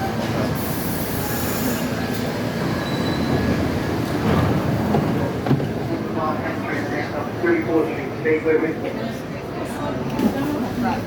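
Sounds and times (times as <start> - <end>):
subway train rumbling on track: 0.0 - 11.0
faint wheel squeal: 2.7 - 3.5.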